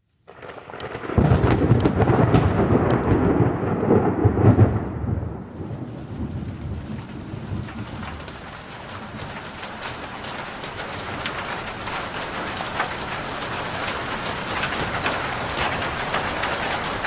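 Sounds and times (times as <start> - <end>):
thunder rolling: 0.3 - 8.2
rain on a roof: 0.4 - 17.0.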